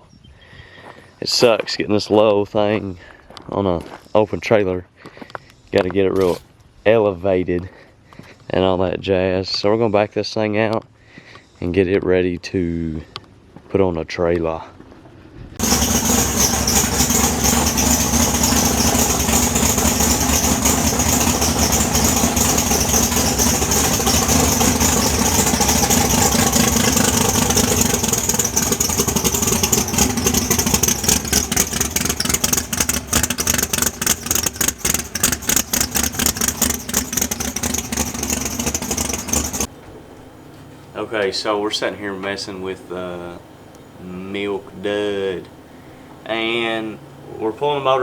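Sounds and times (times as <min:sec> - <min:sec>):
race car engine rough idle: 0:15.6 - 0:39.7.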